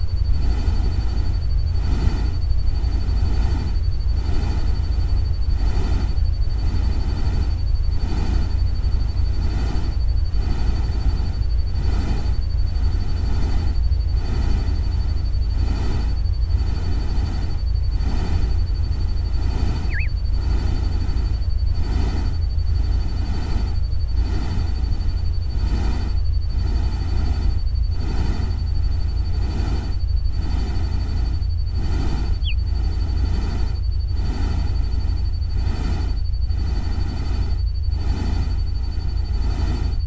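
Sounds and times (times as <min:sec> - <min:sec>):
thin high tone: 0:19.8 - 0:20.2
brief chirp: 0:19.9 - 0:20.1.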